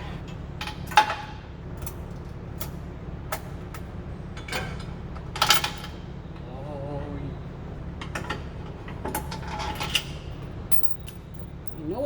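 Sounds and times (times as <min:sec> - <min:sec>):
metal tools clinking: 0:09.3 - 0:12.0.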